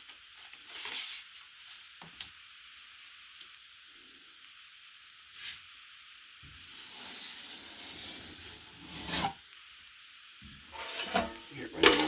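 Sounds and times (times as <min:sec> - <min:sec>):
knife scraping joint compound: 0:10.7 - 0:12.0.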